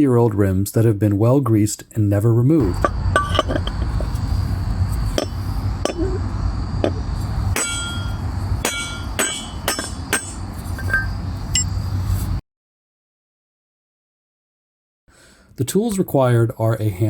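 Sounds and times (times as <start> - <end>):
hammer striking metal chisel: 2.6 - 4.0, 5.2 - 6.1, 7.6 - 11.7
low rumble: 2.6 - 12.4.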